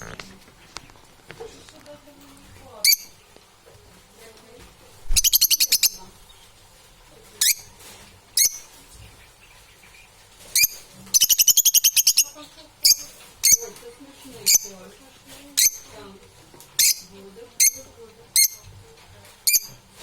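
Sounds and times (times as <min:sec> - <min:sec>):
parrot rapid harsh chirps: 0:05.1 - 0:06.0, 0:10.6 - 0:13.6.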